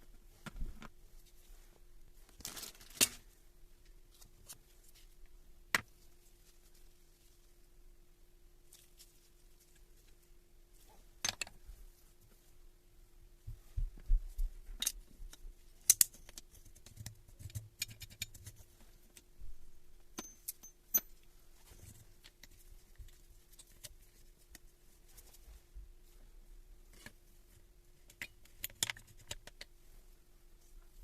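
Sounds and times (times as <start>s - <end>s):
faint steady hum: 0.0s - 31.0s
metal tools clinking and knocking: 20.2s - 21.2s.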